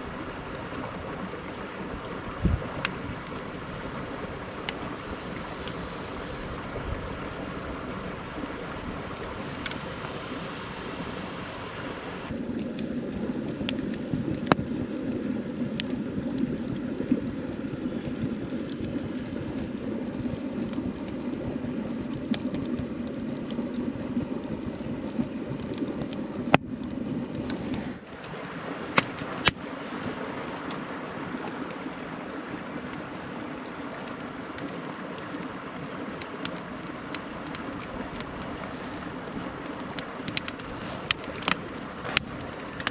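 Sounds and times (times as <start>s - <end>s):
stream rushing: 0.0s - 12.6s, 27.0s - 42.9s
wood fire popping: 12.2s - 31.0s, 32.8s - 42.9s.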